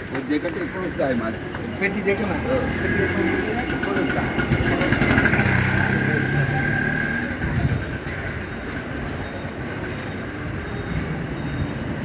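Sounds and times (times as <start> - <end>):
train running on rails: 0.0 - 12.0
train wheel squeal: 7.2 - 12.0.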